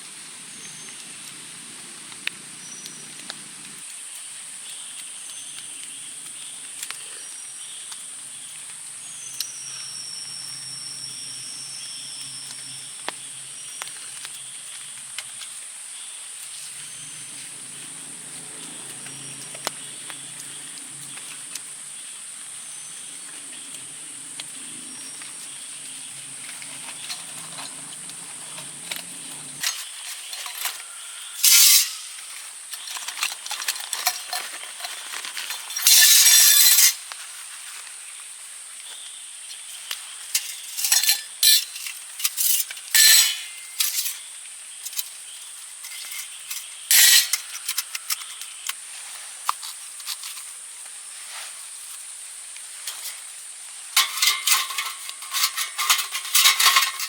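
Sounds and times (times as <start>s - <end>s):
metal cookware clinking and scraping: 29.6s - 37.0s, 40.4s - 44.2s, 45.8s - 48.4s, 54.0s - 57.0s.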